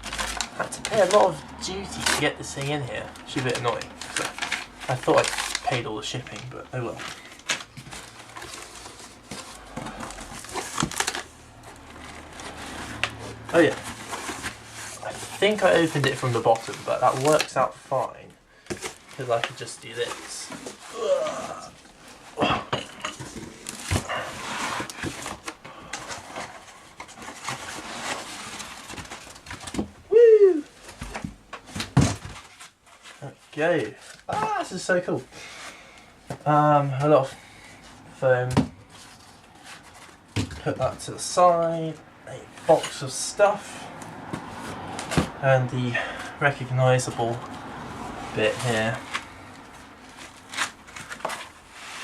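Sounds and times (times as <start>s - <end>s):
cardboard box being opened: 0.0s - 17.9s
packaging rustling: 0.0s - 30.0s, 46.0s - 52.0s
man exclaiming: 30.1s - 30.7s, 34.3s - 34.9s.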